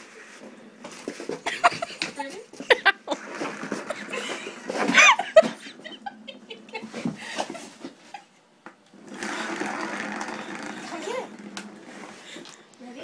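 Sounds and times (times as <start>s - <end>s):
people laughing: 1.4s - 7.7s.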